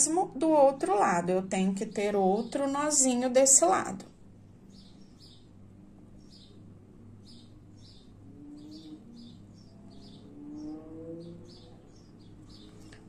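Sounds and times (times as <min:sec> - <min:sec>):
low steady hum: 0:00.0 - 0:13.0
small bird chirping: 0:04.7 - 0:13.0.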